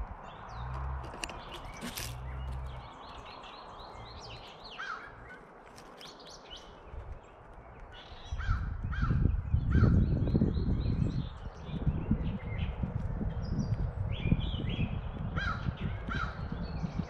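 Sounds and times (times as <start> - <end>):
birds chirping: 0.0 - 17.0
crow-like caws: 4.8 - 5.2, 15.4 - 16.4.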